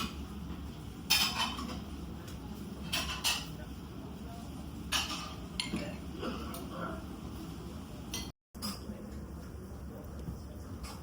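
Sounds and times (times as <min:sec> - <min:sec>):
cutlery clinking on plates: 0:01.1 - 0:01.9, 0:02.8 - 0:03.6, 0:04.9 - 0:06.7, 0:08.1 - 0:09.0.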